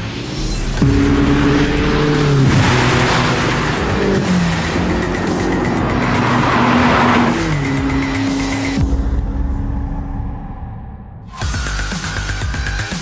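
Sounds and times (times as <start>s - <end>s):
car engine running hard: 0.0s - 8.9s.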